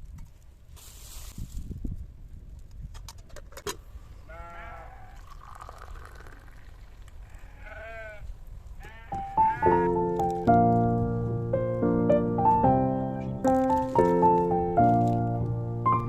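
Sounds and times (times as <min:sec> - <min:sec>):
animal bleating: 0:04.2 - 0:05.2, 0:07.2 - 0:10.1
piano music: 0:09.2 - 0:16.0.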